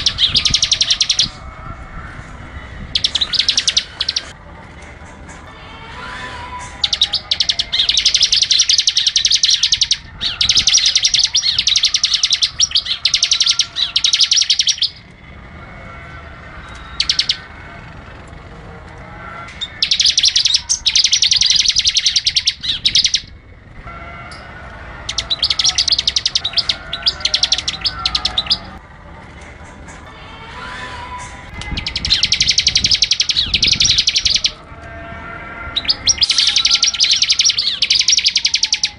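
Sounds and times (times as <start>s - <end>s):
bird singing rapid high notes: 0.0s - 1.5s, 2.6s - 4.4s, 6.1s - 15.1s, 16.6s - 17.7s, 19.4s - 28.8s, 30.8s - 34.7s, 35.6s - 38.9s
quieter bird calls: 0.0s - 1.5s, 2.9s - 4.4s, 6.2s - 17.8s, 19.2s - 28.8s, 31.6s - 35.0s, 35.6s - 38.9s.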